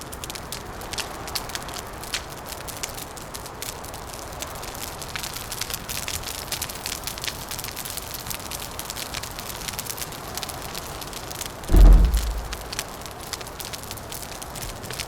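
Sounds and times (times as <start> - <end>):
wood fire crackling and popping: 0.1 - 15.0
low rushing noise: 11.7 - 12.8.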